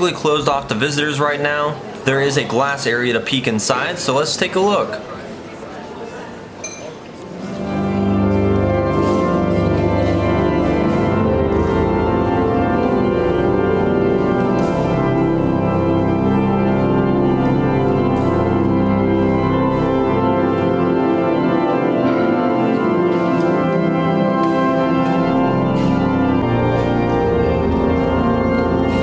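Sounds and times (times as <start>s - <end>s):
pipe organ playing sustained chords: 7.4s - 29.0s.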